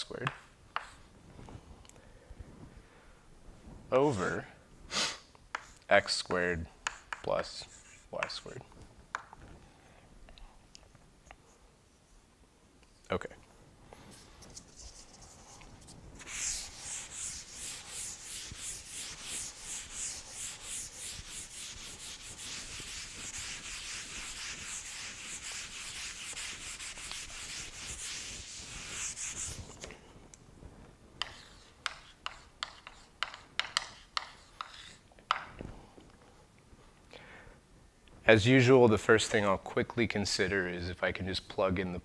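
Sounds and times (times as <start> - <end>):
chalk tapping and scratching: 0.0 - 1.1, 5.5 - 9.3, 14.1 - 29.9, 31.2 - 35.5
eraser rubbing on blackboard: 6.8 - 8.6, 14.1 - 29.9, 31.2 - 35.0.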